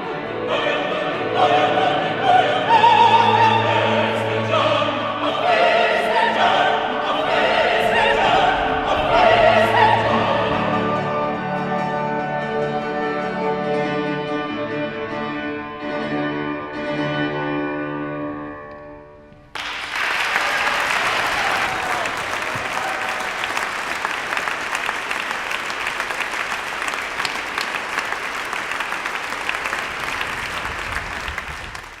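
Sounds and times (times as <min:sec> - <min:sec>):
operatic music with orchestra: 0:00.0 - 0:18.4
audience applauding: 0:19.5 - 0:32.0.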